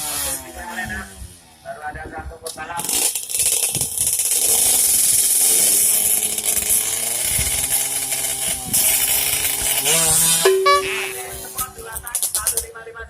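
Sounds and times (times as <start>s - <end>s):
motorcycle engine revving hard: 4.0s - 10.4s.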